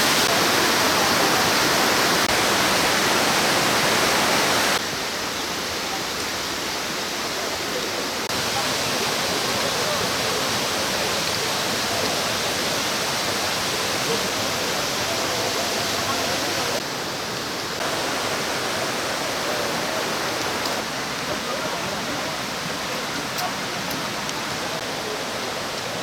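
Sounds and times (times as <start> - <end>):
stream water pouring over rocks: 0.0 - 26.0.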